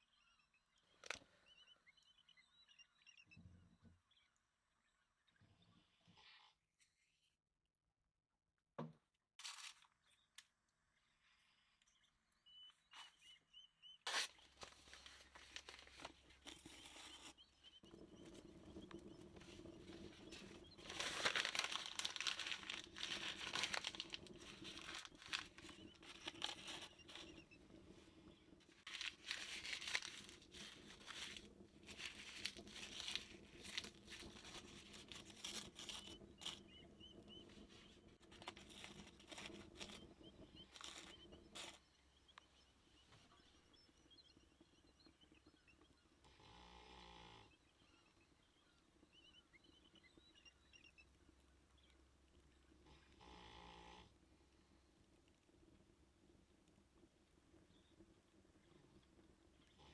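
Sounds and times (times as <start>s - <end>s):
rain crackling patter: 14.4s - 17.1s, 17.8s - 41.8s.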